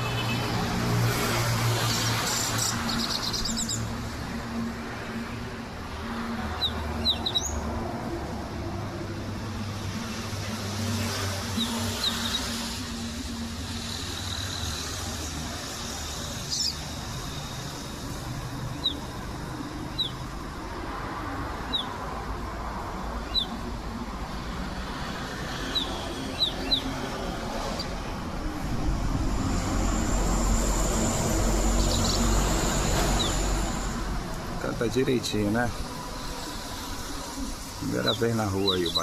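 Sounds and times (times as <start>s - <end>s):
street traffic hum: 0.0s - 39.0s
bird chip calls: 19.9s - 20.2s, 21.7s - 22.0s, 23.2s - 23.6s, 25.7s - 26.9s.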